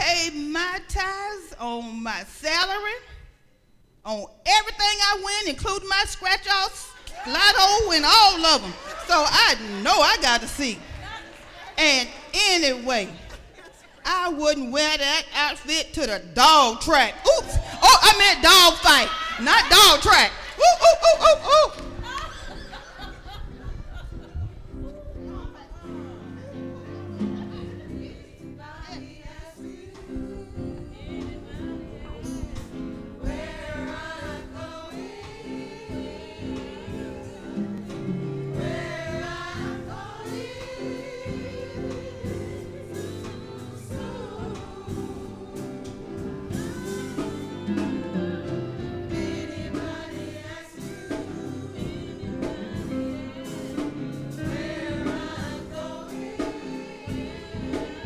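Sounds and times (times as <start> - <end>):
gospel singing: 0.0 - 58.0
instrumental backing: 21.4 - 58.0.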